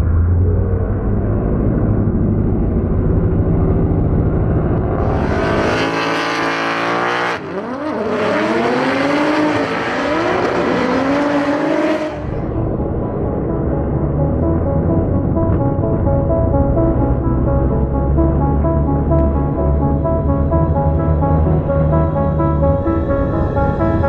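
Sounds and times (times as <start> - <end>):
car engine at high revs: 0.0 - 13.0
muffled low background: 12.2 - 24.0.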